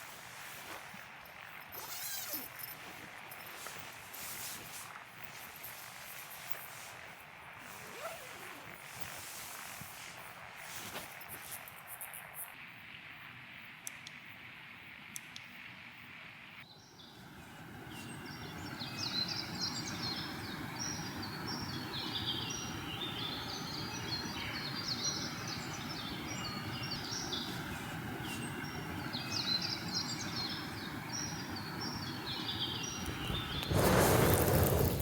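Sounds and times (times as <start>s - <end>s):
birds chirping: 16.7s - 35.0s
steady rushing noise: 32.8s - 35.0s.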